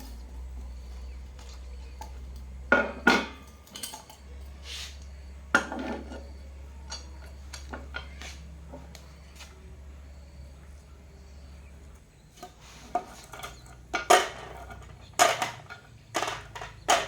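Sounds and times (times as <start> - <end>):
metal tools clanking: 0.0 - 4.6, 5.5 - 9.0, 12.4 - 17.0.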